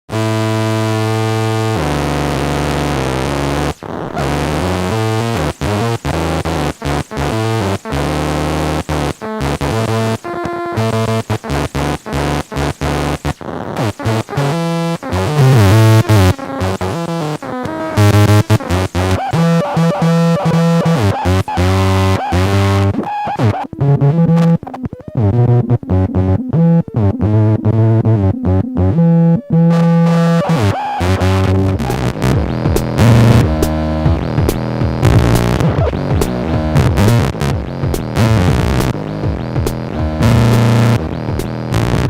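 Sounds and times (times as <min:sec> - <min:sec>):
square-wave synth sequence: 0:00.6 - 0:42.0
drum machine beat: 0:30.1 - 0:42.0.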